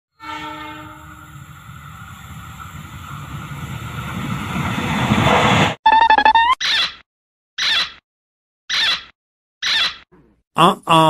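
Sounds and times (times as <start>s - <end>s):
train horn: 0.1s - 1.4s
train rumble: 0.2s - 5.8s.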